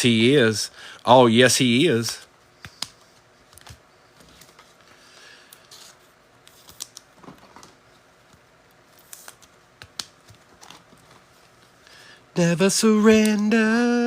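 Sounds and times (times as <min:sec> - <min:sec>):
faint rustling of cards: 0:01.8 - 0:12.2.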